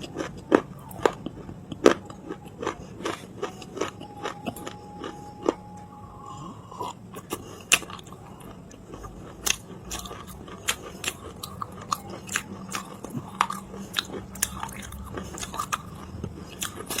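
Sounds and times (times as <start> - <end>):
clay being bitten and chewed: 6.8 - 17.0.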